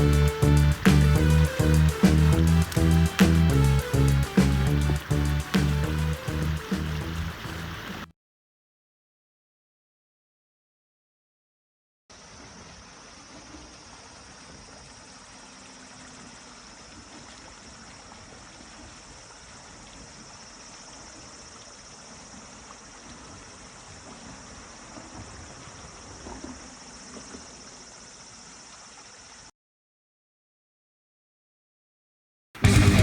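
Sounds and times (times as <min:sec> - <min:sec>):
mountain stream rushing: 0:00.0 - 0:08.1.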